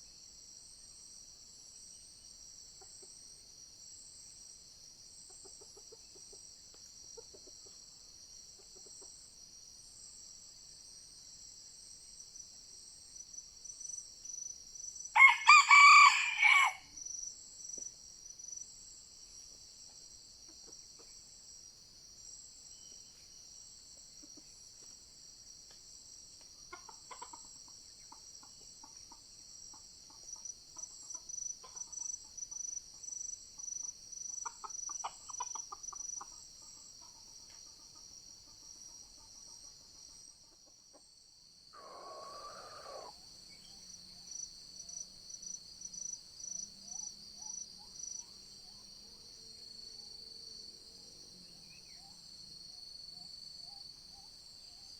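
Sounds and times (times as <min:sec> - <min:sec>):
insects droning: 0:00.0 - 0:54.9
rooster crowing: 0:15.2 - 0:16.9, 0:41.8 - 0:43.2.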